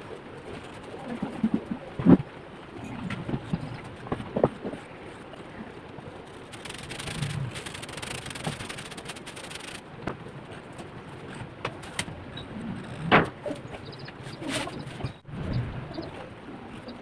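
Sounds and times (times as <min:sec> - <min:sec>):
drawing tool scratching paper: 0:06.5 - 0:09.8.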